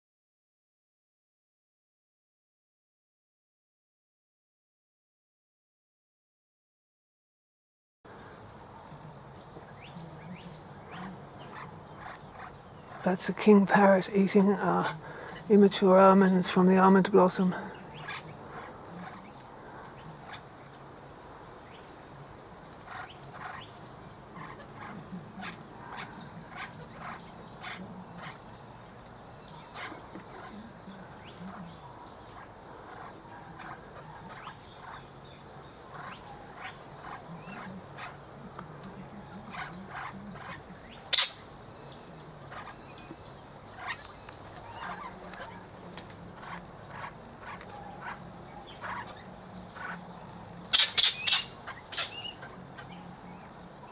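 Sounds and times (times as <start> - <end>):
faint low hum: 8.1 - 16.7, 17.5 - 50.8
birds chirping: 8.1 - 53.9.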